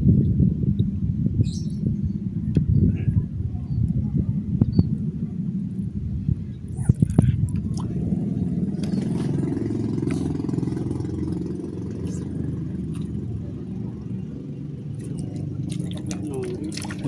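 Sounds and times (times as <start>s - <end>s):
engine running: 4.4s - 17.0s.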